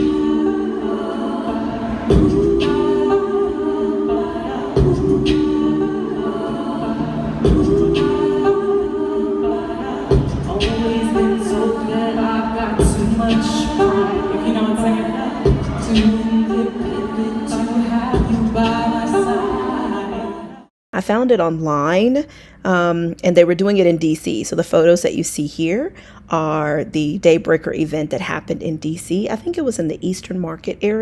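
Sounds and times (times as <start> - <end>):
voices singing a cappella: 0.0 - 20.7.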